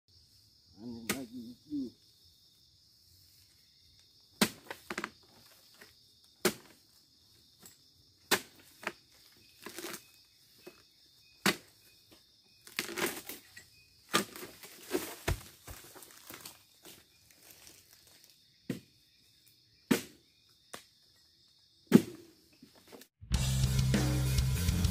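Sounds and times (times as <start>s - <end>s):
harvesting pole chopping: 4.4s - 5.1s, 6.4s - 6.8s, 8.3s - 9.0s, 9.6s - 10.8s, 11.4s - 11.8s, 12.6s - 13.4s, 14.1s - 16.5s, 19.9s - 20.8s
fronds rustling: 8.3s - 12.0s, 12.6s - 18.4s
fruit bunch thudding down: 14.1s - 16.5s.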